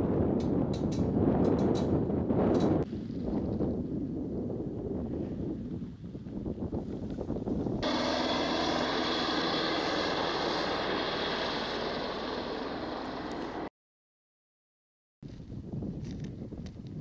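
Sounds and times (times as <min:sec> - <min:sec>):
wind buffeting microphone: 0:00.0 - 0:13.7, 0:15.2 - 0:17.0
aircraft engine drone: 0:07.8 - 0:13.7.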